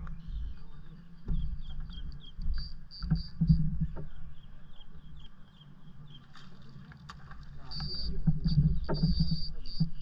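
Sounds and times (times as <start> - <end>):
wind rumbling on microphone: 0.0 - 5.3, 7.2 - 10.0
small birds chirping: 0.0 - 6.5.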